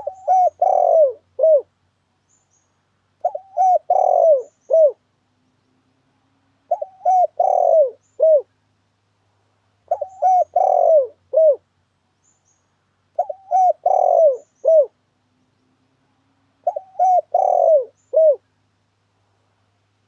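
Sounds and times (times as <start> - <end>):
dove cooing: 0.0 - 1.7, 3.2 - 5.0, 6.7 - 8.5, 9.9 - 11.6, 13.2 - 15.0, 16.6 - 18.4.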